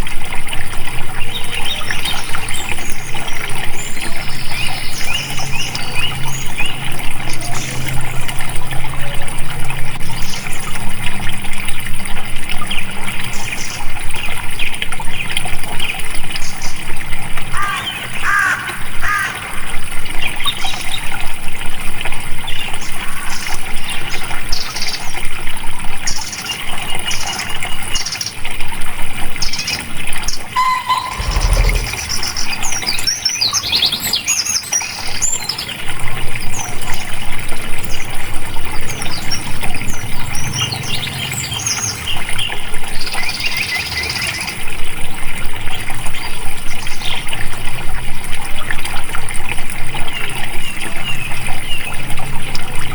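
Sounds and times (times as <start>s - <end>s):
water flowing: 0.0s - 52.9s
birds chirping: 30.5s - 35.0s
low thump: 30.9s - 32.9s.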